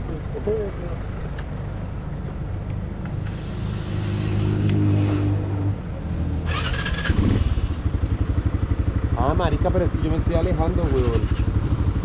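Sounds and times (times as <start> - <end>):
motorcycle engine running: 6.5 - 12.0.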